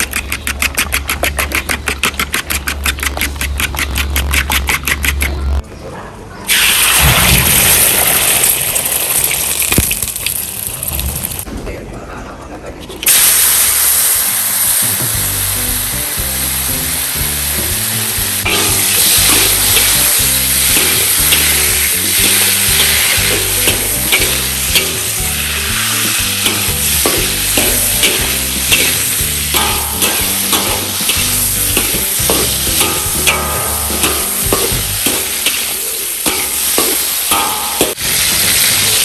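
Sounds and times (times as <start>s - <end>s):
spatula scraping a pan: 0.0s - 5.2s, 18.5s - 34.4s
food sizzling in a pan: 6.5s - 11.4s, 13.1s - 39.0s.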